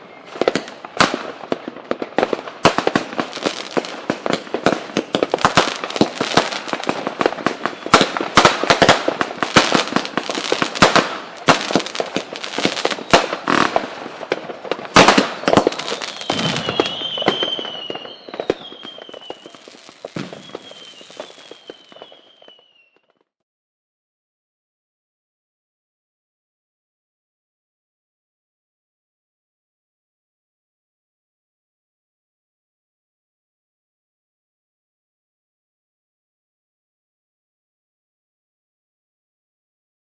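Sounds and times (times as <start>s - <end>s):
fireworks crackling and banging: 0.1s - 23.3s
firework whistles sliding down: 5.0s - 13.8s, 15.0s - 23.3s.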